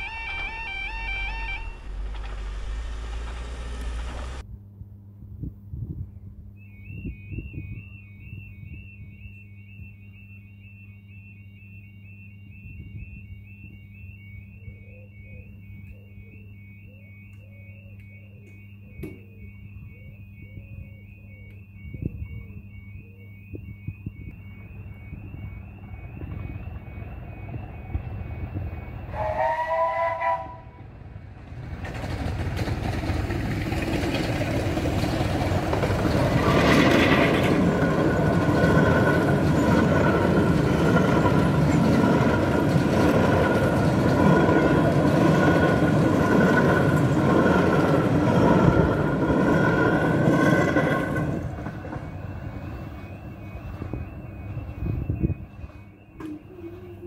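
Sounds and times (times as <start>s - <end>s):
train horn blast: 0.0s - 2.2s, 29.1s - 31.0s
high wheel squeal: 0.0s - 4.4s
level crossing alarm warbling: 0.0s - 4.4s, 6.8s - 31.1s, 33.7s - 57.0s.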